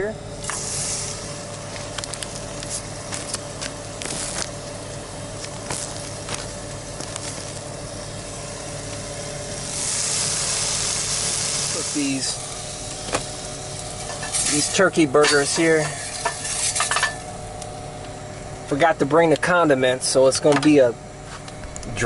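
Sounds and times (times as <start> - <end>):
low hum: 21.0 - 22.0.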